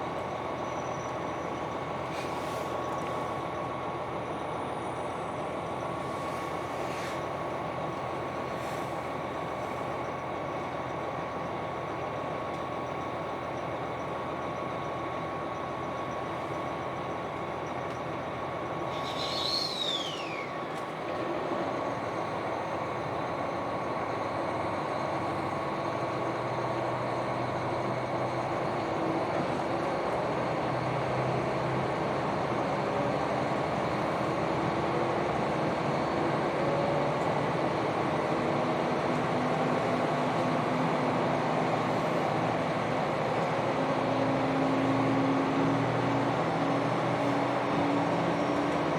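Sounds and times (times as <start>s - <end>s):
diesel railcar running: 0.0s - 48.9s
high falling whistle tone: 18.9s - 20.7s.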